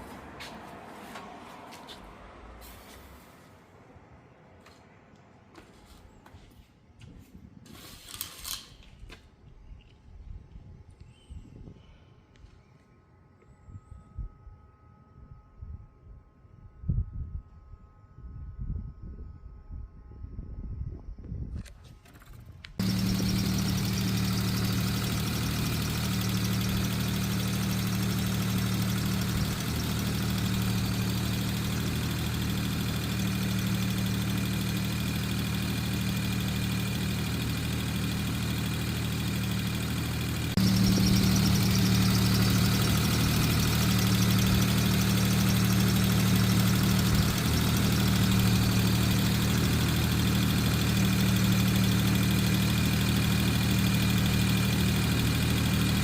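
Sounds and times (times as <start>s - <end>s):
car engine idling: 22.8s - 56.0s.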